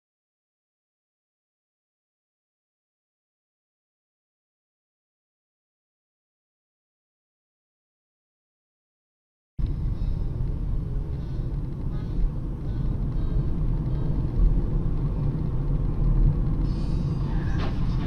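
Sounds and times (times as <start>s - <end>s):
car road and engine noise: 9.6s - 18.0s.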